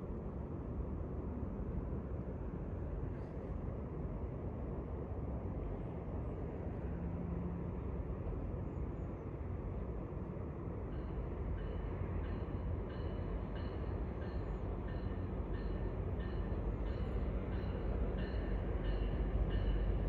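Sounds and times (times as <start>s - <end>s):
diesel train rumbling: 0.0s - 20.0s
train bell ringing: 10.9s - 20.0s.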